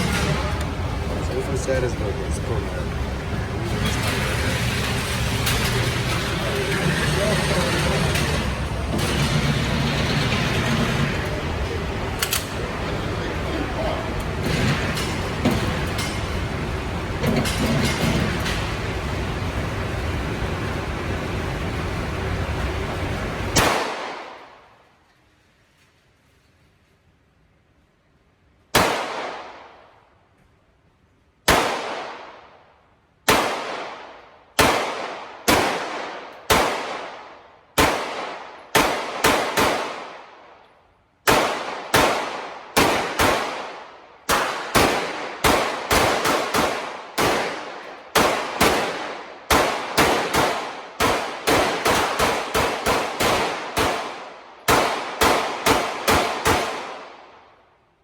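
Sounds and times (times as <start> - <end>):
pistol shots echoing: 23.5 - 24.7, 28.7 - 30.0, 31.4 - 57.6.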